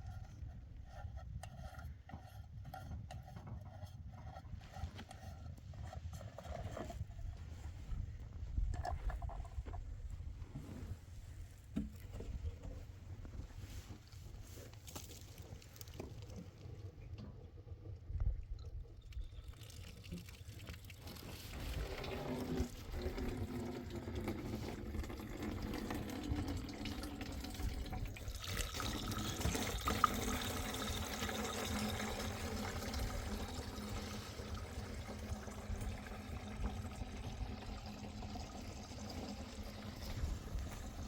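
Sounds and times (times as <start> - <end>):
water running: 19.4 - 41.0.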